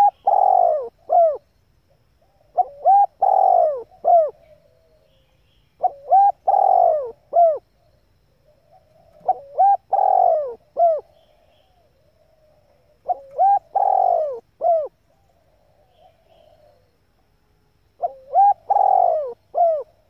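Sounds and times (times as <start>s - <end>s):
dove cooing: 0.0s - 1.5s, 2.2s - 5.2s, 5.8s - 17.2s, 18.0s - 20.0s.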